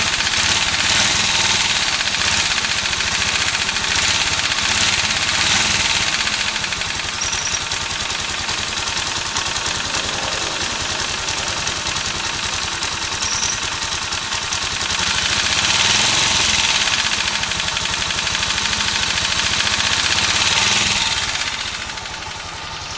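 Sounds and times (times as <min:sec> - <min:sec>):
fast even engine ticking: 0:00.0 - 0:22.9
motorcycle engine running: 0:00.0 - 0:22.9.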